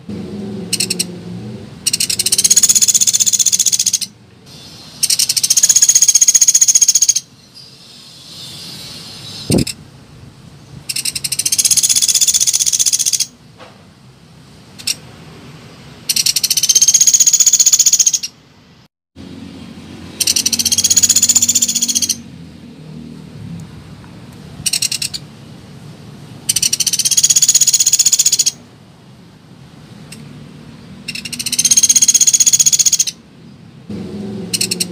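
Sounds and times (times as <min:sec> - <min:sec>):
woodpecker rattling trills: 0:00.8 - 0:01.1, 0:01.9 - 0:04.1, 0:05.0 - 0:07.3, 0:10.9 - 0:13.3, 0:16.1 - 0:18.3, 0:20.2 - 0:22.2, 0:24.7 - 0:25.2, 0:26.5 - 0:28.6, 0:31.1 - 0:33.2, 0:34.6 - 0:34.9.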